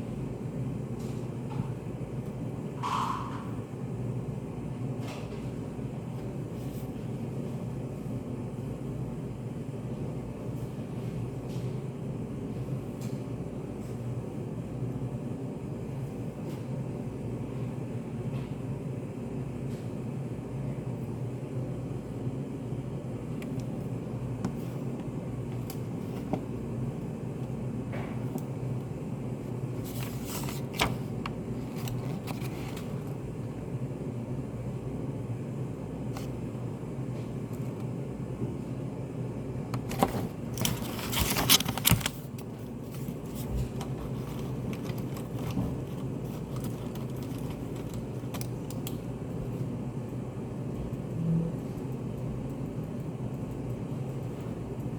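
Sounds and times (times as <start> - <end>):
low hum of ventilation: 0.0 - 54.9
handling noise: 39.8 - 48.6.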